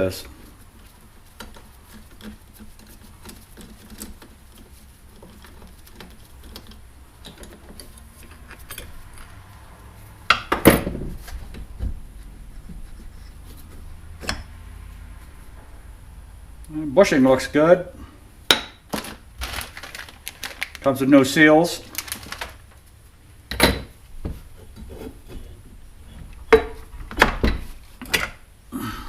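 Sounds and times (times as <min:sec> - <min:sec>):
metal parts clicking and rattling: 0:01.4 - 0:09.4, 0:18.9 - 0:21.0.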